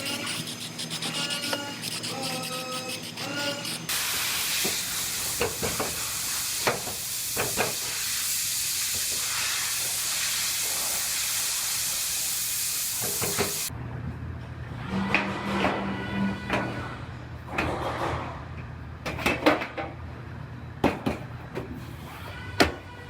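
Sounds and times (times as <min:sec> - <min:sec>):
compressed air hissing: 0:03.8 - 0:13.7.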